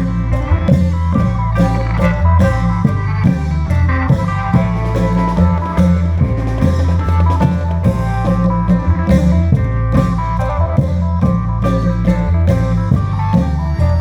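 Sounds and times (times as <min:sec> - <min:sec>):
deep held bass line: 0:00.0 - 0:14.0
drums beating a rhythm: 0:00.0 - 0:14.0
melody: 0:00.0 - 0:14.0.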